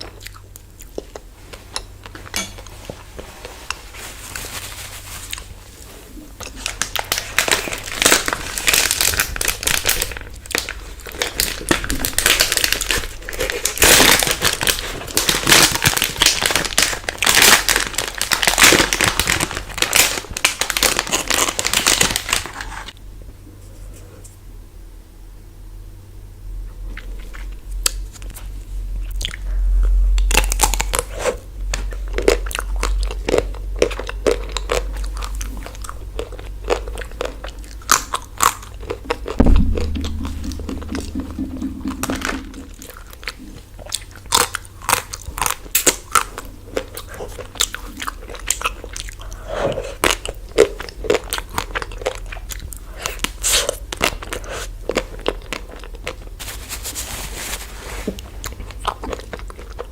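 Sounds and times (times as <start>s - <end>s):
crunching and chewing ice cream: 0.0s - 3.8s, 5.3s - 23.0s, 26.7s - 39.4s, 42.8s - 57.0s, 58.1s - 59.9s
low steady hum: 0.0s - 15.3s, 22.9s - 45.3s.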